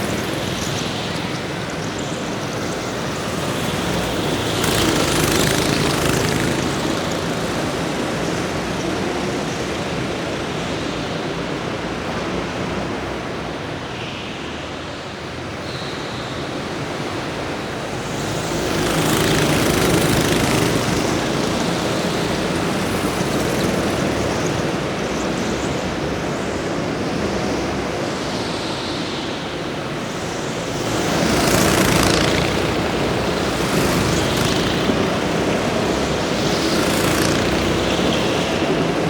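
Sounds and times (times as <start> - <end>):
racing engines passing by: 0.0 - 13.8, 15.2 - 28.8, 29.4 - 39.0
steady noisy background: 0.0 - 39.0.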